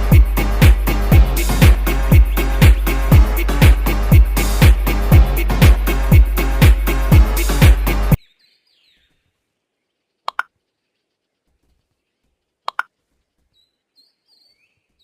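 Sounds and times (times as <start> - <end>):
sharp double clicks: 10.3 - 10.5, 12.6 - 12.9.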